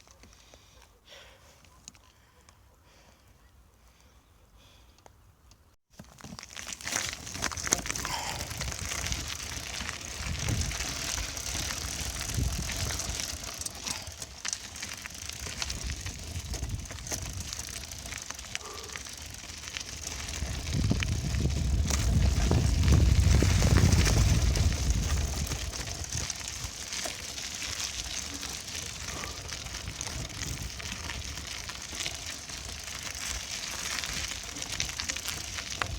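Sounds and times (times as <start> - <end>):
bicycle tyre noise: 6.0 - 35.9.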